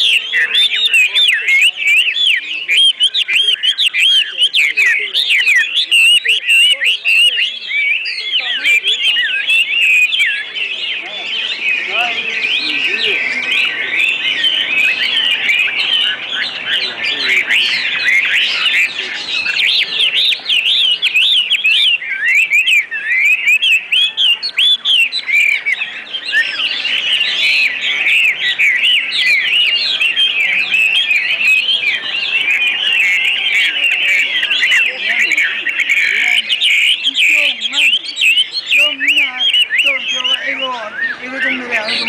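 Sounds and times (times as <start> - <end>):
caged birds chirping: 0.0 - 42.0.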